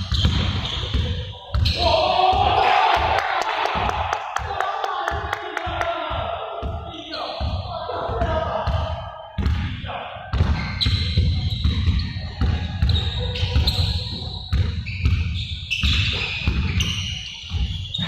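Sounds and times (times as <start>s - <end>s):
high-pitched shoe squeaks: 0.0s - 1.8s, 10.6s - 18.0s
basketballs bouncing on court: 0.0s - 18.0s.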